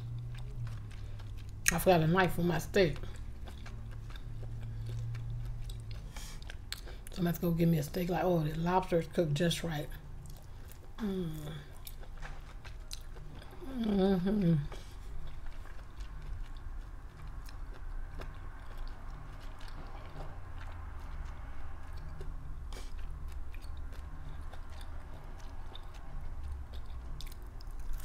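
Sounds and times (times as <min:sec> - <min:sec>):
low steady hum: 0:00.0 - 0:28.0
person chewing with wet clicks: 0:00.0 - 0:28.0.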